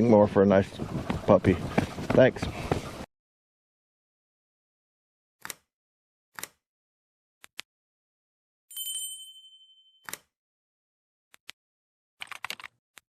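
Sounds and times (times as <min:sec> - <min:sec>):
bell-like electronic ding: 0:08.7 - 0:10.1.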